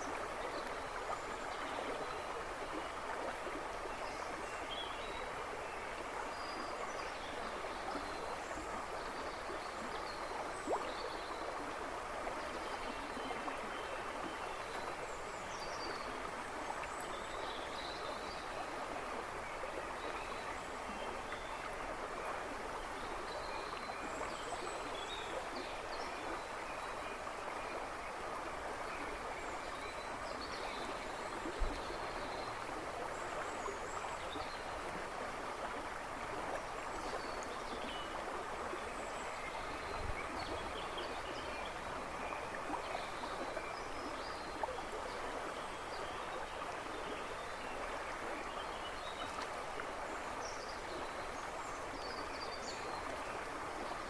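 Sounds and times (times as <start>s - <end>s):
river babbling and rushing: 0.0s - 54.0s.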